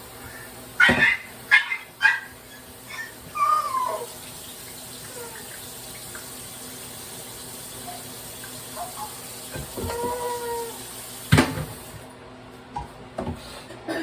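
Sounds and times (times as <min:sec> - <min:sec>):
pet calling: 0:00.8 - 0:04.3.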